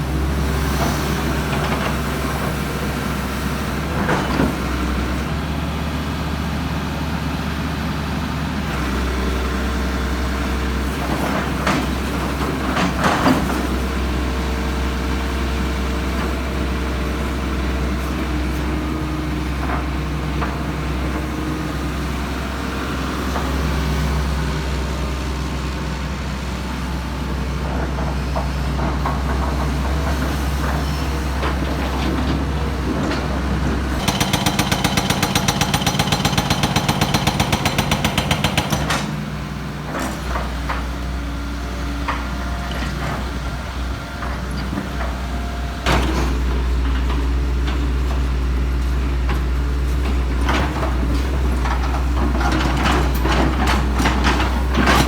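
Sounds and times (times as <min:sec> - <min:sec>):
diesel machinery engine drone: 0:00.0 - 0:55.0
rapid even hammering: 0:34.0 - 0:39.1.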